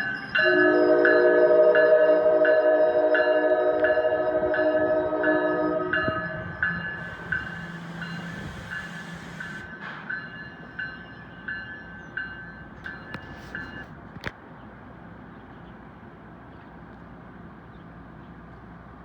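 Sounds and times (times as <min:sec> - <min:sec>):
crossing warning bell ringing: 0:00.0 - 0:14.0
passing train rumble: 0:00.0 - 0:19.0
wind noise: 0:03.8 - 0:09.8.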